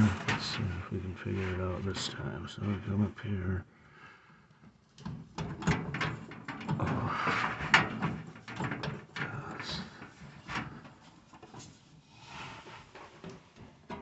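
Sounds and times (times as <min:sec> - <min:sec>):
belt knocking and scraping on metal: 0:04.6 - 0:12.0.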